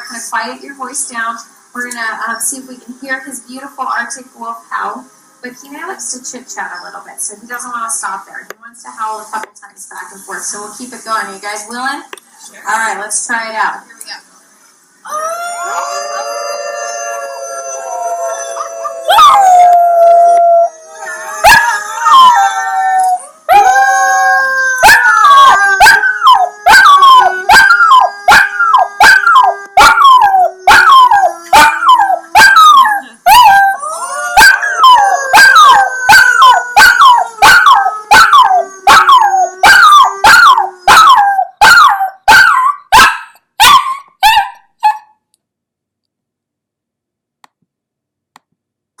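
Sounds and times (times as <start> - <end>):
low steady howl: 15.1 - 41.8
dog howling: 15.1 - 43.9.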